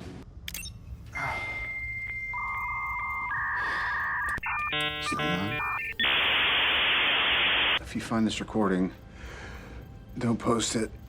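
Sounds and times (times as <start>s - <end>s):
electronic beeping tones: 2.1s - 7.8s.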